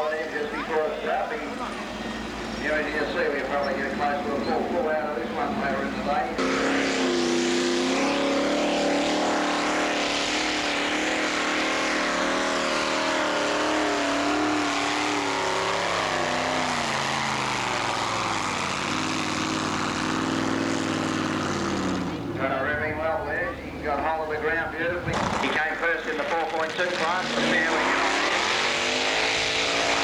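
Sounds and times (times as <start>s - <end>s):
tractor engine working hard: 0.0s - 30.0s.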